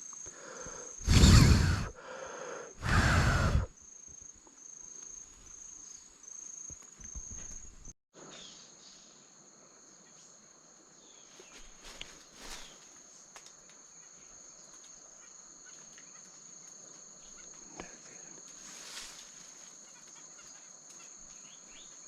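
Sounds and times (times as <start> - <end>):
insects chirping: 0.0 - 22.0
loud bursts of noise: 1.0 - 2.0, 2.8 - 3.7.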